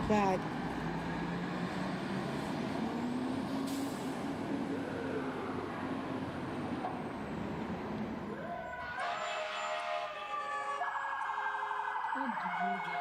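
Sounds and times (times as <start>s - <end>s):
heavy truck engine running: 0.0s - 8.4s.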